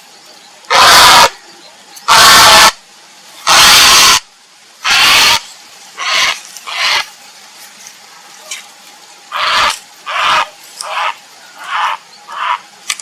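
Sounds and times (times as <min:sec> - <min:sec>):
heron croaking calls: 0:00.7 - 0:01.4, 0:02.1 - 0:02.8, 0:03.5 - 0:04.2, 0:04.8 - 0:05.4, 0:06.0 - 0:07.1, 0:09.3 - 0:12.7.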